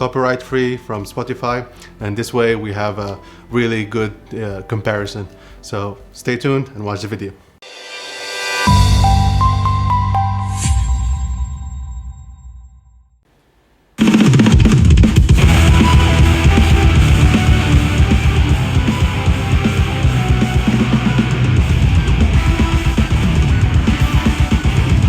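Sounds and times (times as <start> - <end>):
rock music through speaker: 14.2 - 25.0.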